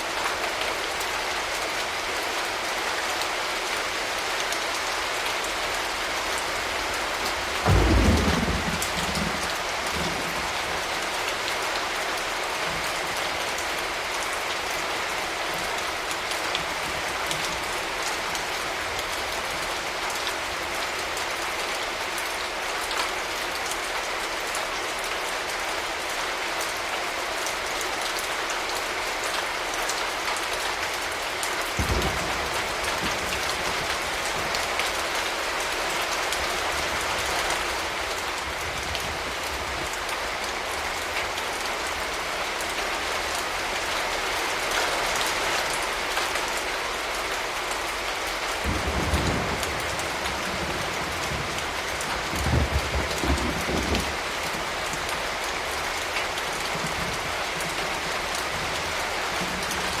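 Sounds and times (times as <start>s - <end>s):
steady rain falling: 0.0s - 60.0s
distant thunder rumbles: 7.6s - 11.0s, 48.6s - 54.8s.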